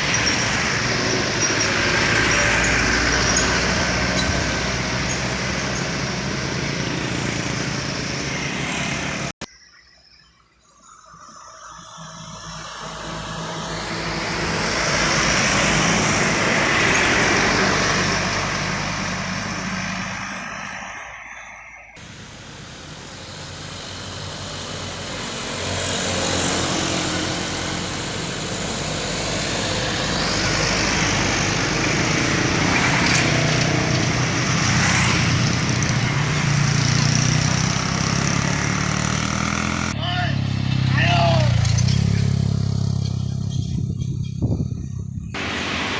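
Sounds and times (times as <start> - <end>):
trucks passing uphill: 0.0 - 9.5, 12.0 - 45.9
low engine rumble: 27.3 - 45.9.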